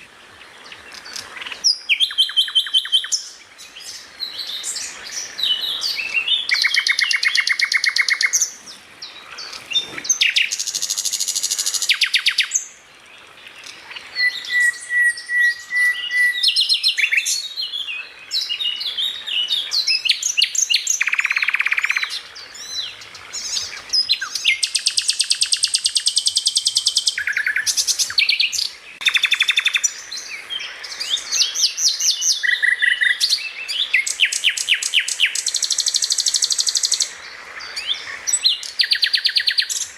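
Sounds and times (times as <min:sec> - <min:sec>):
songbird trilling: 0:00.6 - 0:12.7, 0:13.5 - 0:39.9
bird whistled notes: 0:14.2 - 0:17.3.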